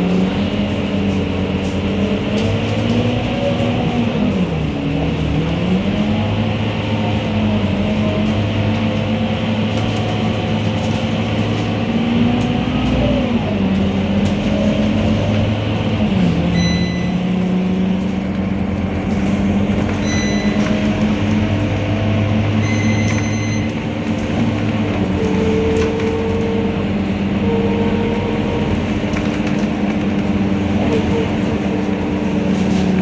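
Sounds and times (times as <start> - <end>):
bus diesel engine running: 0.0 - 33.0
brief high tone: 16.6 - 17.3, 20.0 - 20.6, 22.6 - 23.7.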